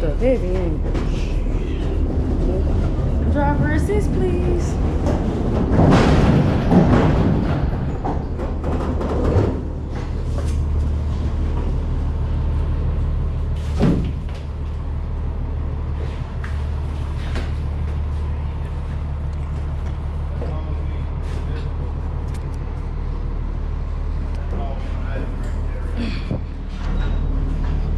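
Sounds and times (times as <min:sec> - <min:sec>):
cargo rattling and banging: 0:00.0 - 0:22.1
truck engine idling: 0:00.0 - 0:27.9.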